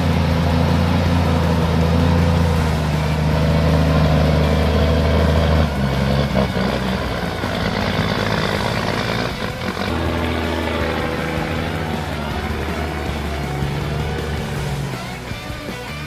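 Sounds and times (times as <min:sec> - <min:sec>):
truck diesel engine running: 0:00.0 - 0:16.0.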